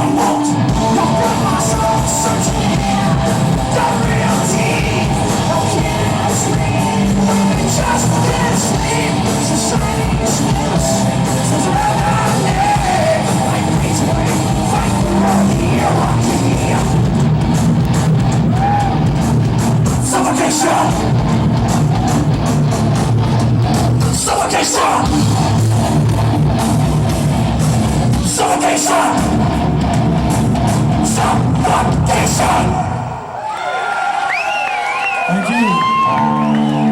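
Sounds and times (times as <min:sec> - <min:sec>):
person singing: 0:00.0 - 0:17.1, 0:20.0 - 0:21.1
live rock band playing: 0:00.0 - 0:33.2
drums: 0:00.0 - 0:33.5, 0:34.2 - 0:36.9.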